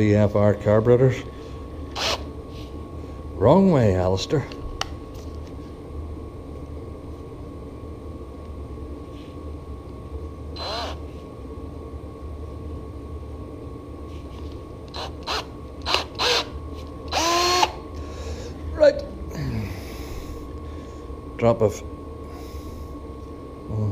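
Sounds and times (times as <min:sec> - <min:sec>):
electric drill whining: 0:01.9 - 0:02.3, 0:10.6 - 0:11.0, 0:14.9 - 0:17.8.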